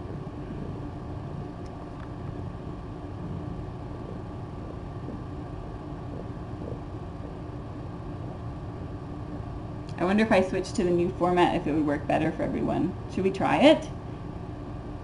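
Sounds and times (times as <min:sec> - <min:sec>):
faint steady tone: 0:00.0 - 0:09.9
room noise hum and hiss: 0:00.0 - 0:15.0.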